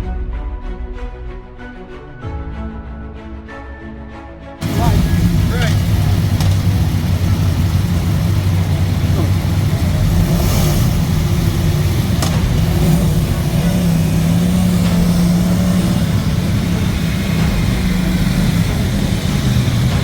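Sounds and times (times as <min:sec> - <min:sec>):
vehicle engine humming: 0:04.6 - 0:20.0.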